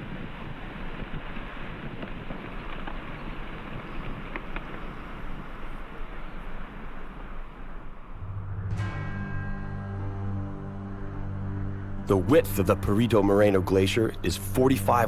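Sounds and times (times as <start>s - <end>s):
wind with low rumble: 0.0s - 15.0s
music: 8.2s - 15.0s.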